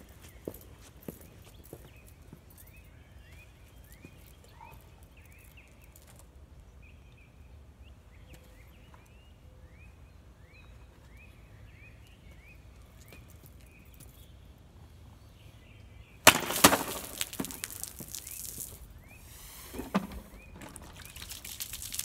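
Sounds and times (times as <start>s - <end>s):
faint bird chirping: 0.0s - 16.2s.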